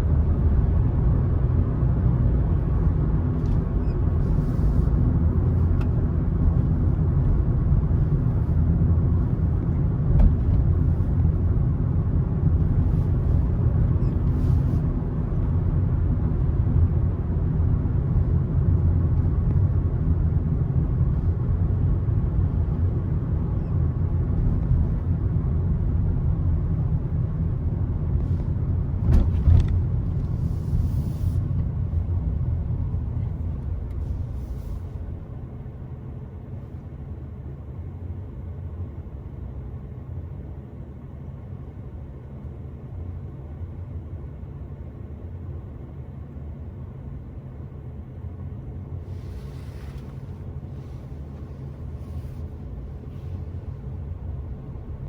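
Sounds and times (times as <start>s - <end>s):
car engine and tyres rumbling: 0.0s - 55.0s
brief thump: 29.0s - 29.8s.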